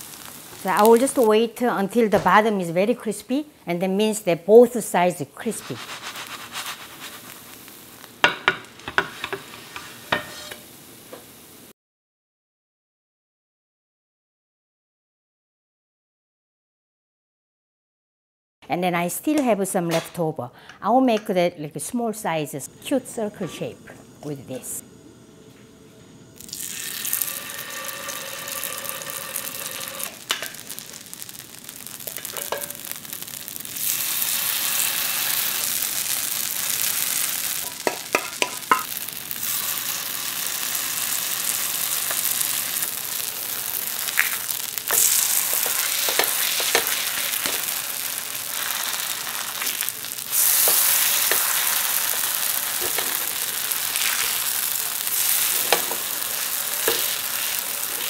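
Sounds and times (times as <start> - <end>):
batter sizzling in oil: 0.0 - 2.0, 5.4 - 11.7, 22.9 - 58.0.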